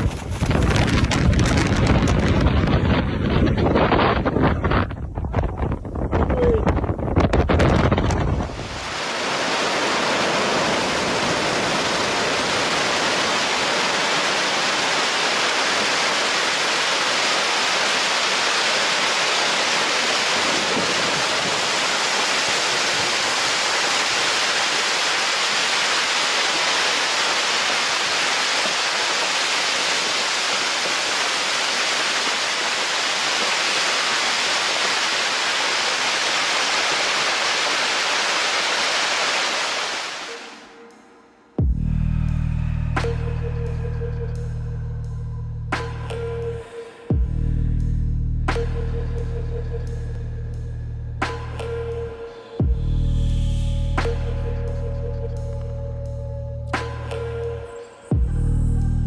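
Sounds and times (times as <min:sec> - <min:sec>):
steady rushing noise: 0:00.0 - 0:47.4.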